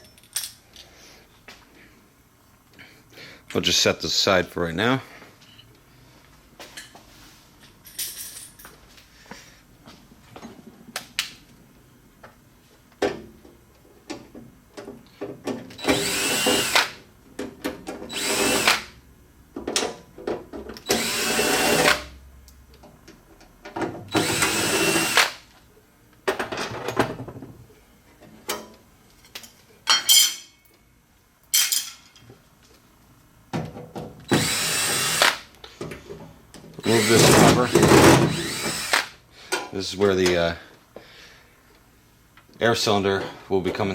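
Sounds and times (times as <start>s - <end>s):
power drill whining: 15.8s - 17.0s, 18.1s - 18.9s, 20.8s - 22.0s, 24.1s - 25.4s, 34.3s - 35.4s, 36.8s - 39.1s.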